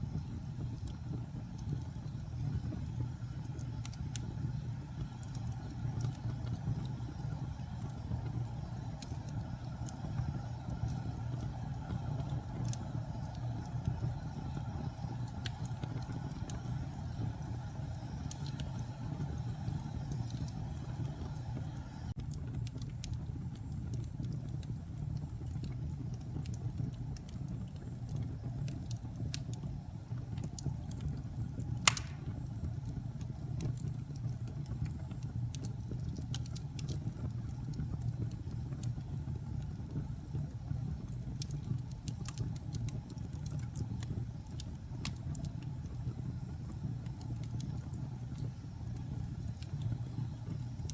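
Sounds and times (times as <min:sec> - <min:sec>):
fire crackling: 0:00.0 - 0:50.9
fire flames roaring: 0:00.0 - 0:50.9
sharp pop of fire: 0:31.8 - 0:32.5.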